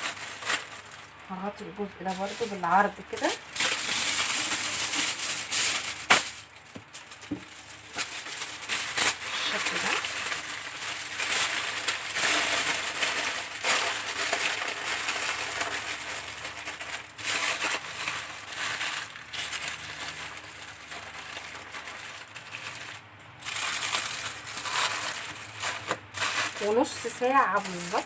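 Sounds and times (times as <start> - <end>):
aluminium foil crinkling: 0.0 - 28.0.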